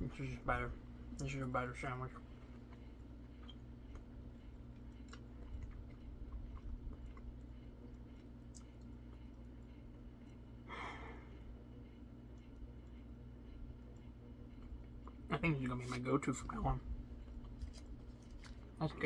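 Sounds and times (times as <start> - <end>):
steady low hum: 0.0 - 19.0
person chewing food: 2.3 - 15.3, 17.1 - 18.7
breathy sound: 10.7 - 11.4.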